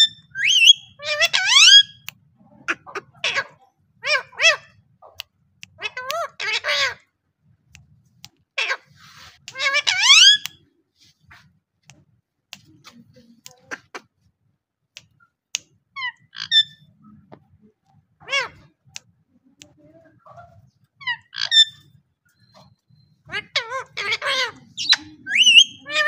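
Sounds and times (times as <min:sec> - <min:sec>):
parrot squawking: 0:00.0 - 0:07.1, 0:08.6 - 0:10.6, 0:16.0 - 0:17.0, 0:18.2 - 0:18.9, 0:20.2 - 0:26.0.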